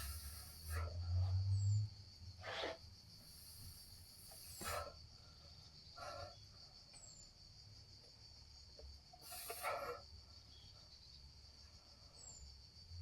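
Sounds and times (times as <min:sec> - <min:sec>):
short noisy puffs: 0:00.0 - 0:01.3, 0:02.4 - 0:05.0, 0:09.2 - 0:10.0
insects droning: 0:00.0 - 0:13.0.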